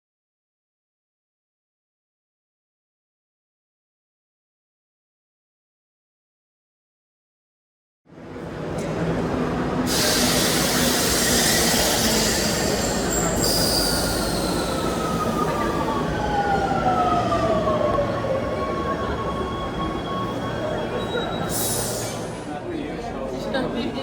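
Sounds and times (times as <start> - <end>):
subway train rumble: 8.1 - 24.0.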